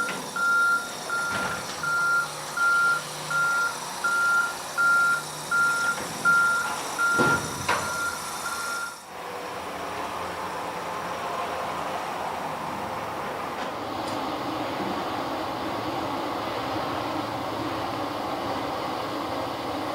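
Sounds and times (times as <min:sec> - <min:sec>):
truck reversing alarm beeping: 0:00.0 - 0:09.1
truck engine running: 0:00.0 - 0:19.9.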